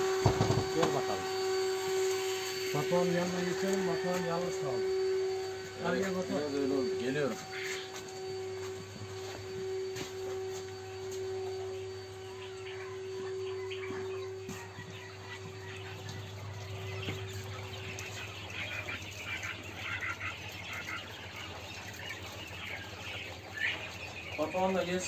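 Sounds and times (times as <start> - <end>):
steady mid-pitched tone: 0.0 - 19.8
birds chirping: 0.0 - 25.0
steady low hum: 0.0 - 25.0.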